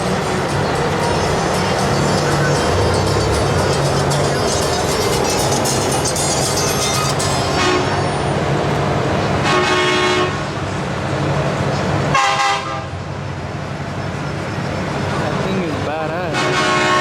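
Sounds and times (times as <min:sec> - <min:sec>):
truck engines rumbling: 0:00.0 - 0:17.0
vehicle horn blasts: 0:09.4 - 0:10.4, 0:12.2 - 0:12.9, 0:16.3 - 0:17.0.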